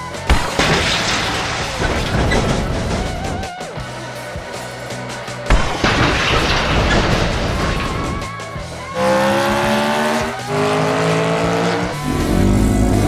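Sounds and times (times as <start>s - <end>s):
background music: 0.0s - 13.0s
race car engine revving: 8.9s - 13.0s.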